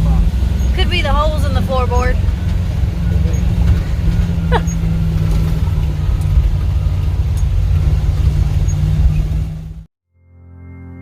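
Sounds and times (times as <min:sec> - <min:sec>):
truck engine and road noise: 0:00.0 - 0:09.9
short squeak: 0:03.0 - 0:05.6.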